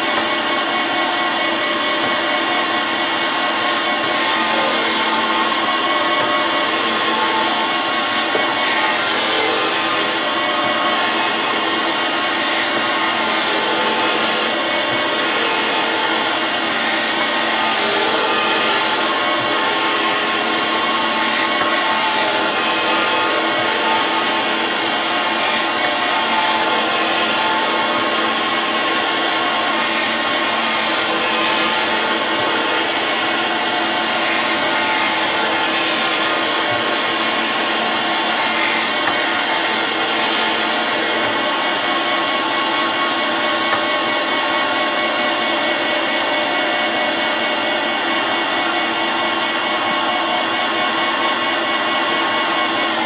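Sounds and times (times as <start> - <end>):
grinder wheel whining and hissing: 0.0 - 53.0.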